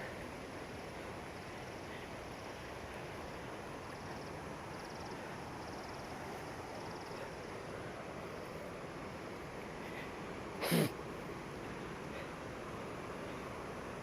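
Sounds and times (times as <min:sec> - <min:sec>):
insect trills: 0:00.0 - 0:09.8
stream water rushing: 0:00.0 - 0:14.0.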